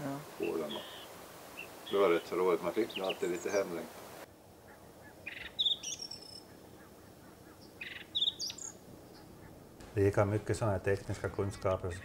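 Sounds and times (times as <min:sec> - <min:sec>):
songbird trilling and singing: 0:00.4 - 0:03.8, 0:05.2 - 0:06.6, 0:07.6 - 0:09.4.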